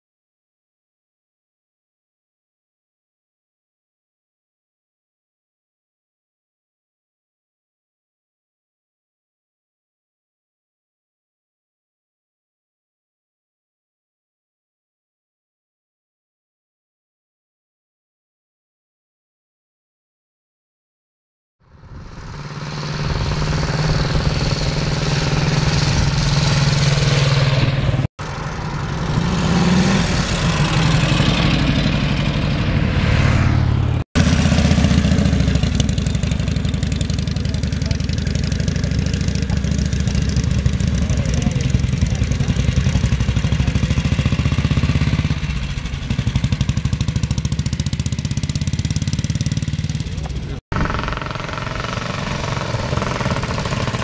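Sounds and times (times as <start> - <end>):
motorcycle engines revving: 21.7 - 54.0.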